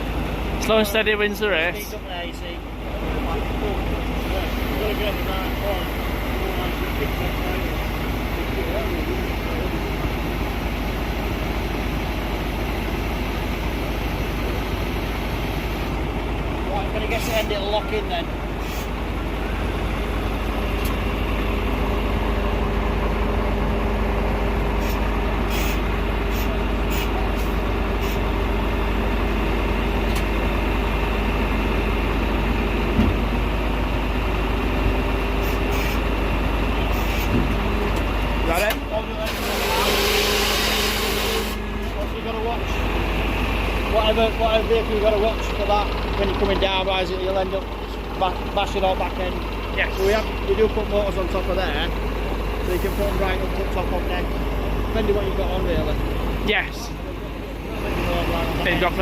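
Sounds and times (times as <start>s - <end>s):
truck engine rumbling: 0.0s - 59.0s
hydraulic whine: 2.3s - 46.7s.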